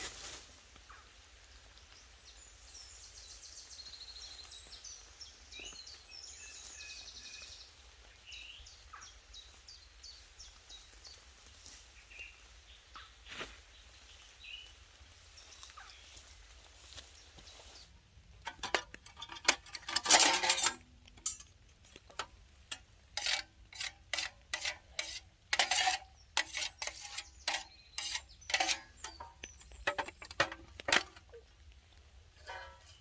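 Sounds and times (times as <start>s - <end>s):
rustling: 15.4s - 33.0s
metal pieces clinking: 18.5s - 21.5s.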